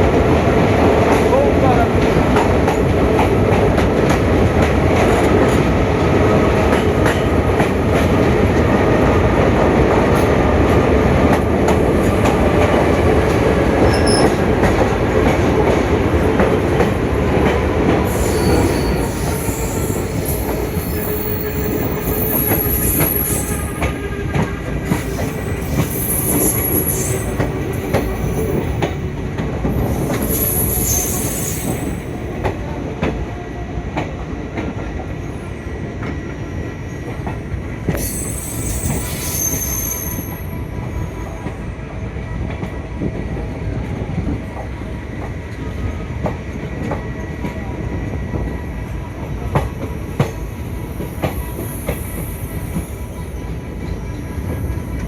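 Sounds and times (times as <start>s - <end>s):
train wheels rumbling on rail: 0.0s - 55.0s
clicks of train wheels: 2.0s - 8.7s, 11.2s - 33.3s, 36.9s - 40.5s, 42.4s - 48.6s, 49.2s - 55.0s
high-pitched wheel squeal: 13.9s - 14.4s, 18.1s - 23.9s, 30.1s - 32.0s, 38.0s - 40.5s.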